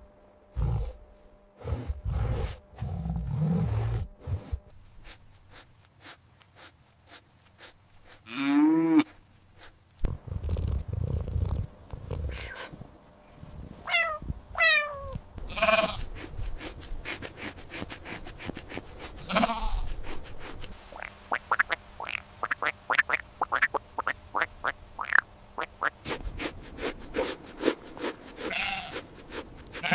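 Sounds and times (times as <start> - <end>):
drawn-out animal call: 21.0 - 26.0, 28.4 - 29.9.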